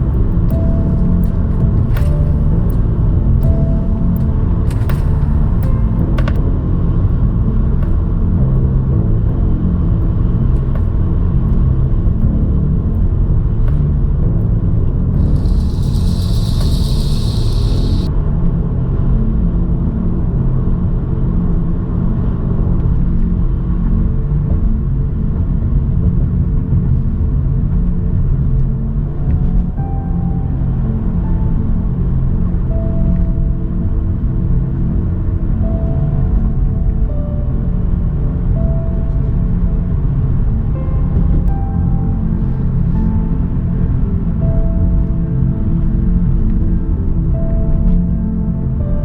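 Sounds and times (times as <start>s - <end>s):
car engine and road noise: 0.0s - 24.0s
burst of hiss: 15.2s - 18.1s.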